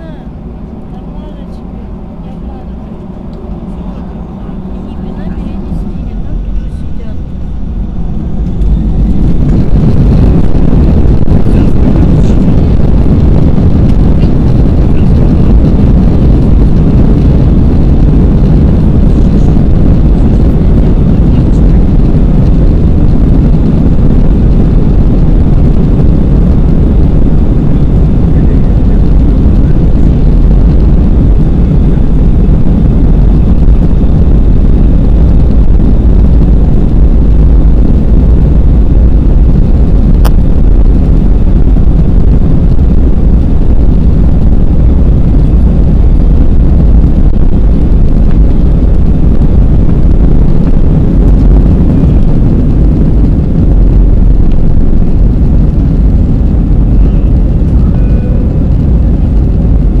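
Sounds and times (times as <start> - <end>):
jet engines and rushing air: 0.0 - 60.0.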